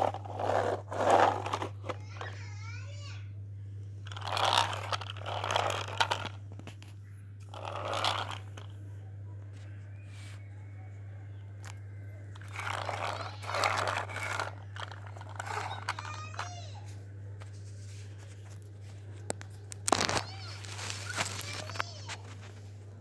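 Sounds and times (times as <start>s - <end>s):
crunching and crinkling of parts: 0.0s - 2.4s, 4.0s - 8.7s, 11.6s - 23.0s
parts rattling: 0.0s - 2.4s, 4.1s - 6.8s, 7.5s - 8.7s, 12.3s - 16.5s
low electrical hum: 0.0s - 23.0s.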